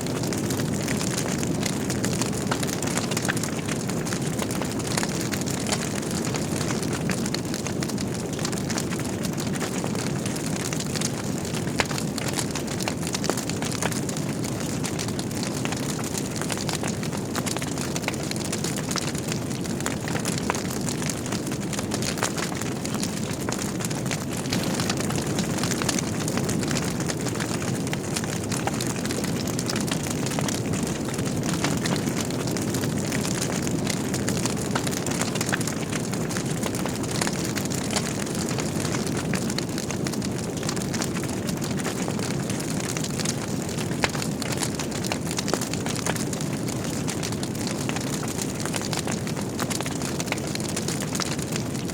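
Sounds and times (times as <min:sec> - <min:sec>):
logs crackling and popping: 0:00.0 - 0:51.9
low rumble of flames: 0:00.0 - 0:51.9.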